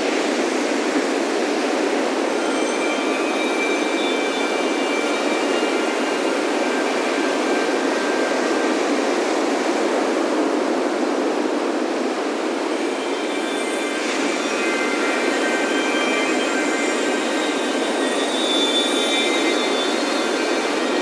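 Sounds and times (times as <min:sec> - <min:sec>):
ocean surf washing in: 0:00.0 - 0:21.0
wind chimes ringing: 0:02.3 - 0:09.1, 0:12.7 - 0:21.0.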